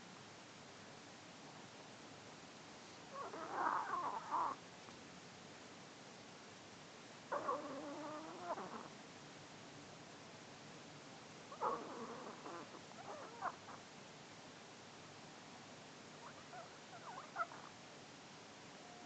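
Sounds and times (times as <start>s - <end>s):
dog snoring: 3.1s - 4.6s, 7.3s - 8.9s, 11.5s - 13.6s.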